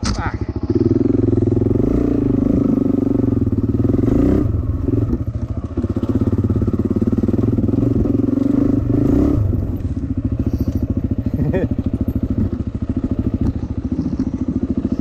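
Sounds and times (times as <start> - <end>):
dirt bike engine revving: 0.4 - 15.0.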